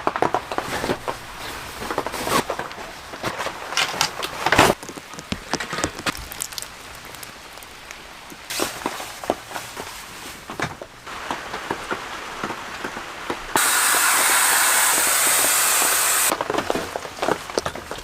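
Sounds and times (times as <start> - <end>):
rain falling: 4.4 - 18.0.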